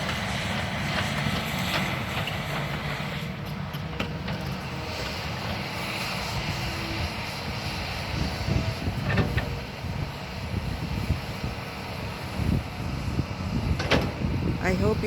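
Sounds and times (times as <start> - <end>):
excavator engine running: 0.0 - 15.0
clanks and knocks: 13.8 - 14.2.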